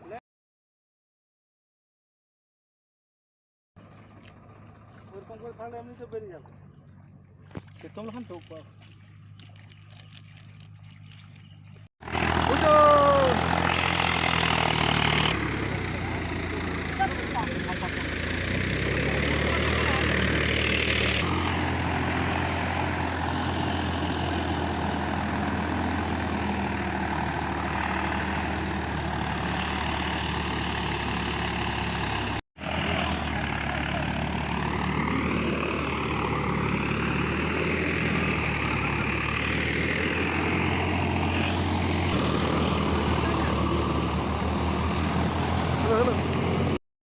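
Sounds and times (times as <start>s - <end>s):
tractor engine droning: 10.5s - 46.8s.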